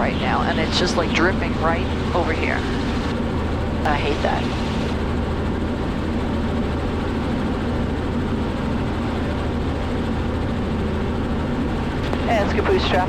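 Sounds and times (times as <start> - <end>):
helicopter engine and rotor noise: 0.0 - 13.0.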